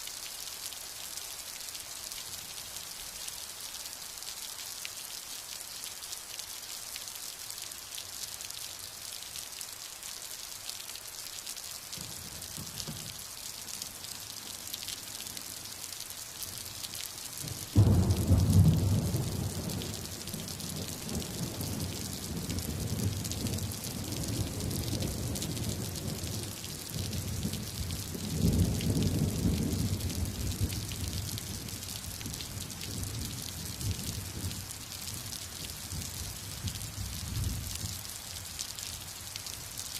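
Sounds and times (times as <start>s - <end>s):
heavy rain: 0.0s - 39.9s
close crack of thunder: 17.5s - 20.1s.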